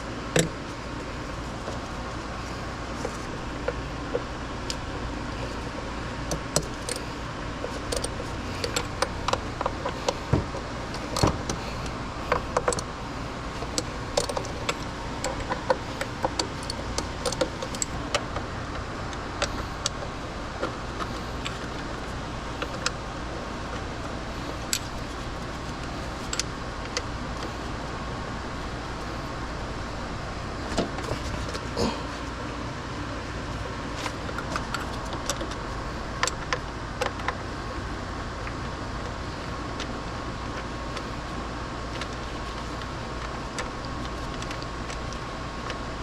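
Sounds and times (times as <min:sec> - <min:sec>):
steady low hum: 0:00.0 - 0:46.0
hand tools clicking and clinking: 0:07.8 - 0:10.1, 0:13.7 - 0:18.2.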